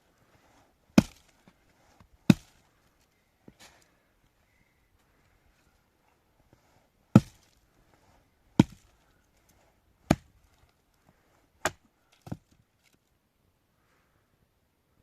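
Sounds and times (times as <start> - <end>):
axe chopping wood: 0.9 - 1.4, 2.2 - 2.6, 7.1 - 7.6, 8.6 - 9.0, 10.0 - 10.4, 11.6 - 12.5.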